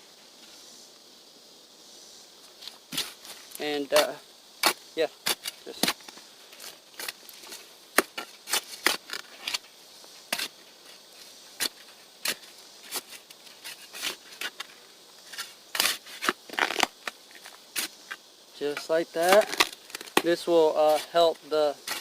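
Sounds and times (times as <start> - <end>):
hand mixing dry soil: 18.6 - 22.0.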